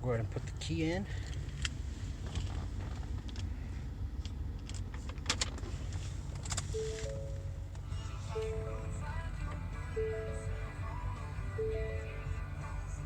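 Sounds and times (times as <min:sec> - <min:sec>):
low rumble: 0:05.8 - 0:13.0
electronic chime: 0:06.8 - 0:07.6.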